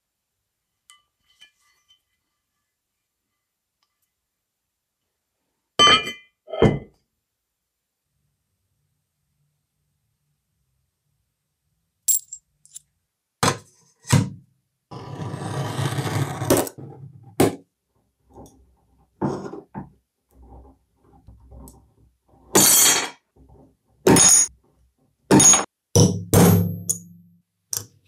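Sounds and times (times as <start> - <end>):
metallic clinks and knocks: 12.1 - 12.9, 26.5 - 27.2.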